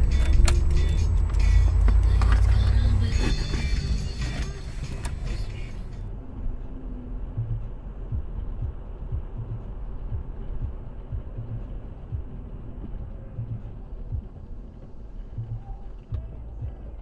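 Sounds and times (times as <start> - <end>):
car road and engine rumble: 0.0 - 17.0
low thumps: 7.4 - 17.0.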